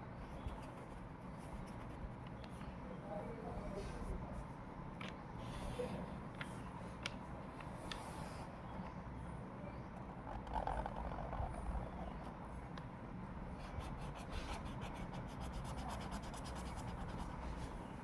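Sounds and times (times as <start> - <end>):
drawing tool scratching on paper: 10.3 - 12.3, 13.6 - 17.7.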